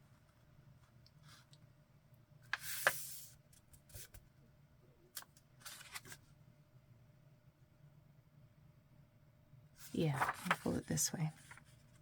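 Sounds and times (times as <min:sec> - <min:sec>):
paper rustling and crackling: 0:05.6 - 0:06.3, 0:09.8 - 0:12.0.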